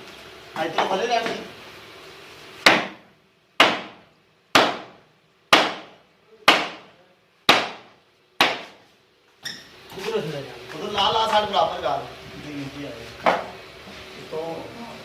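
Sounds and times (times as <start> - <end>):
hammer striking wood: 2.6 - 6.9, 7.5 - 8.8, 13.2 - 13.5.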